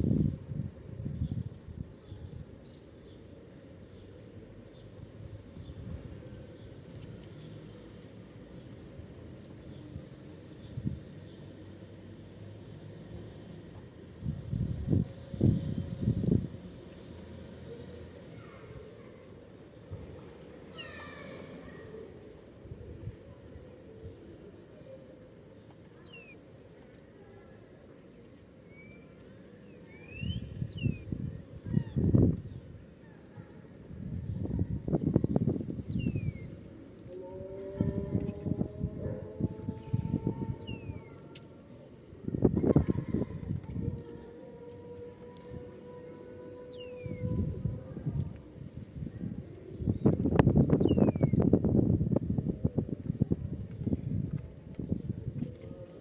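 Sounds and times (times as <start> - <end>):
pigeons pecking on ground: 0.0 - 56.0
small birds chirping: 14.2 - 37.1, 39.0 - 51.6
birds chirping: 20.5 - 22.4, 25.6 - 26.4, 35.3 - 36.6, 39.0 - 41.8, 45.4 - 47.4, 49.8 - 51.4.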